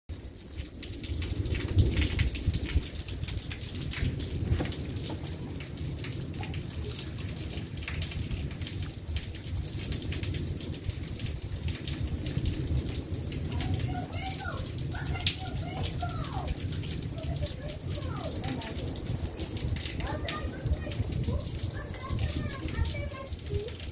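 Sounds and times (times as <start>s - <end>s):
rain falling: 0.1s - 23.9s
raindrops ticking close by: 0.1s - 23.9s.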